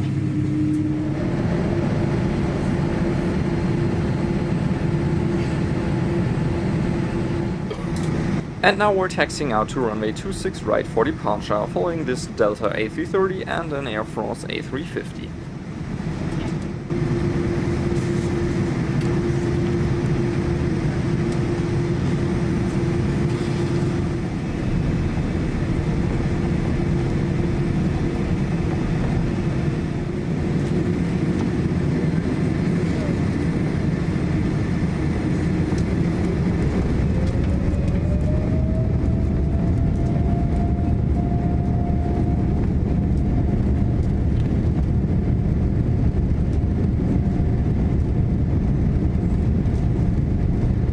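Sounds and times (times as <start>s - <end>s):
engine tone rising in pitch: 0.0s - 3.1s, 36.2s - 44.0s
jet engines rumbling in cabin: 0.0s - 50.9s.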